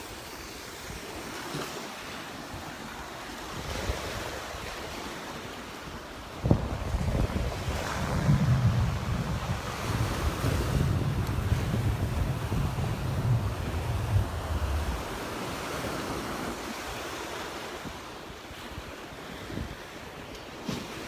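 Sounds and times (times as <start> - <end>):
surf washing onto beach: 0.0 - 18.5
wind buffeting microphone: 6.3 - 17.0.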